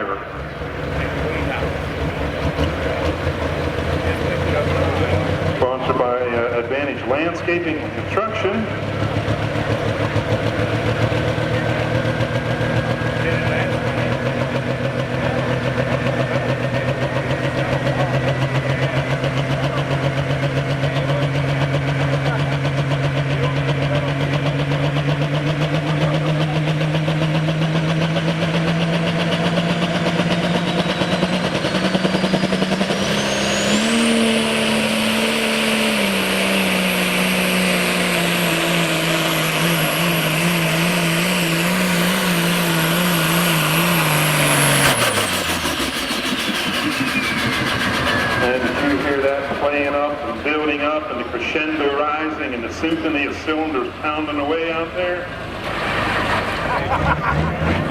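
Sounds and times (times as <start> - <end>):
diesel tractor engine under load: 0.0 - 57.9
turbo whine: 9.2 - 55.1.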